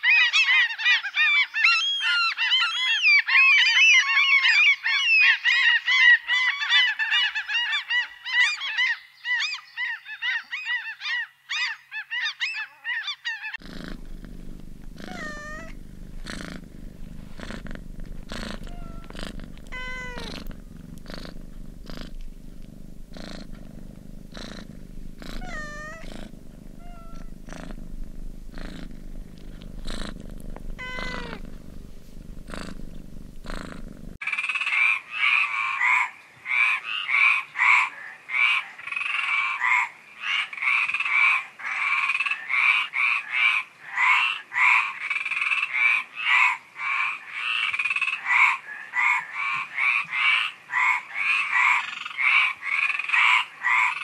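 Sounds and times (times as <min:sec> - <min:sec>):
cat purring: 0:13.6 - 0:34.2
cat meowing: 0:15.0 - 0:16.5, 0:17.3 - 0:23.6, 0:24.4 - 0:31.7
frogs croaking in chorus: 0:34.2 - 0:54.0.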